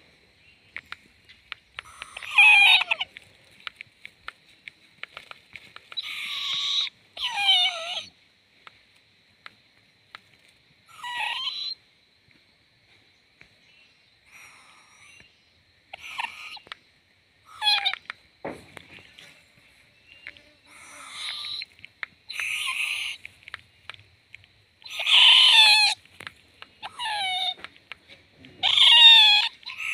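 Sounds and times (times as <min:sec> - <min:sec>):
owl raspy screeches: 0:01.8 - 0:03.1, 0:06.0 - 0:08.1, 0:10.9 - 0:11.8, 0:14.3 - 0:15.2, 0:15.9 - 0:16.7, 0:17.5 - 0:18.0, 0:20.7 - 0:21.7, 0:22.3 - 0:23.3, 0:24.8 - 0:26.0, 0:26.8 - 0:27.6, 0:28.4 - 0:29.9.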